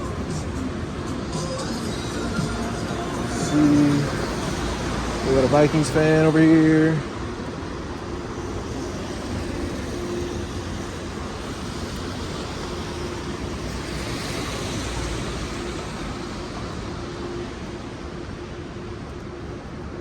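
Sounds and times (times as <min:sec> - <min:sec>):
vehicle passing: 0:00.0 - 0:07.5
traffic on wet roads: 0:00.0 - 0:20.0.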